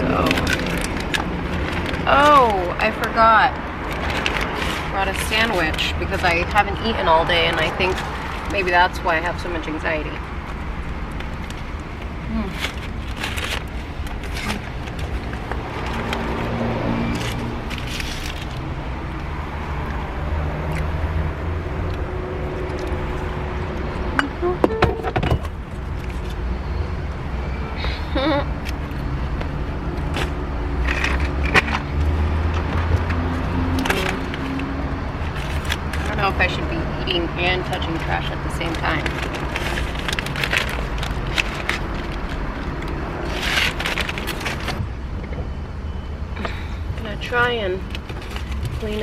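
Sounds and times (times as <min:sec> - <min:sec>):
low engine hum: 0:00.0 - 0:49.0
steady low rumble: 0:00.0 - 0:49.0
wrappers and plastic crinkling: 0:03.7 - 0:23.9, 0:27.8 - 0:44.8, 0:47.8 - 0:49.0.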